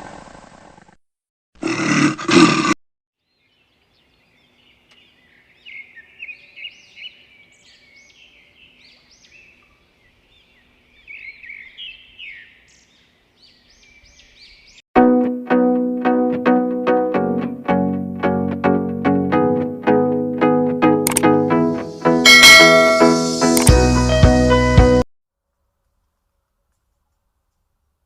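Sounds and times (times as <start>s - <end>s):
loud animal roar: 1.6s - 2.8s.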